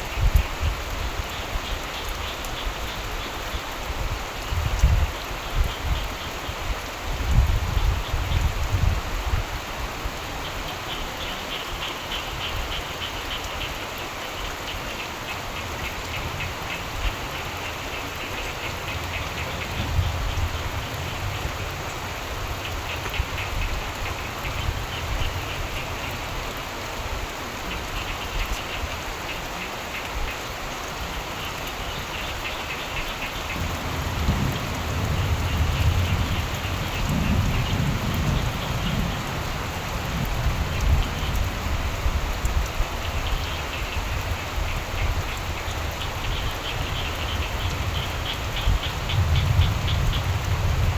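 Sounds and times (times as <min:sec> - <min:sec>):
steady rain falling: 0:00.0 - 0:50.9
frogs croaking: 0:10.2 - 0:50.9
low thunder rumbling: 0:33.4 - 0:42.3, 0:46.9 - 0:50.9.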